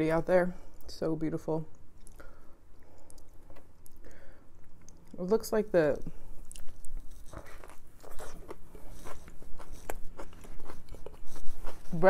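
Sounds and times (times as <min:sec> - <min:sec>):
sandwich biting and chewing: 0:06.4 - 0:12.0.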